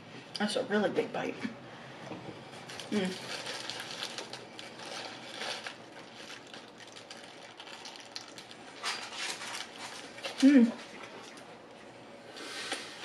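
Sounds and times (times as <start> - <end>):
paper wrapper crinkling: 2.6 - 11.5.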